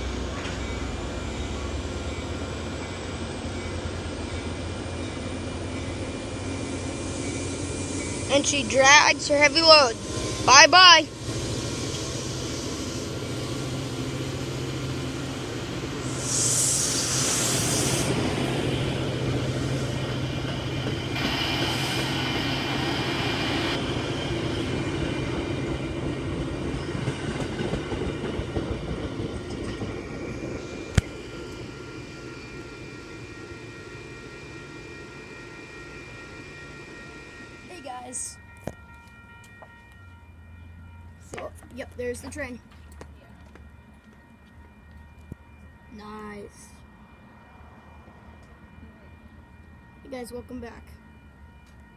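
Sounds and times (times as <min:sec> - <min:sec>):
diesel locomotive engine droning: 0:00.0 - 0:51.9
rumble of train cars: 0:00.0 - 0:51.9
air hiss: 0:16.0 - 0:18.4.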